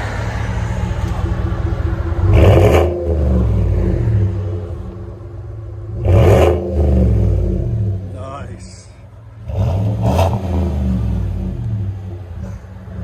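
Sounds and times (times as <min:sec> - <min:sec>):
engine exhaust idling and revving: 0:00.0 - 0:13.0.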